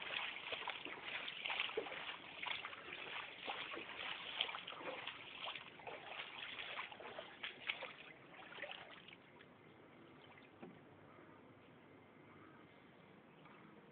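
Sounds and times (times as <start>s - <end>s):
floodwater splashing and trickling: 0.0s - 10.7s.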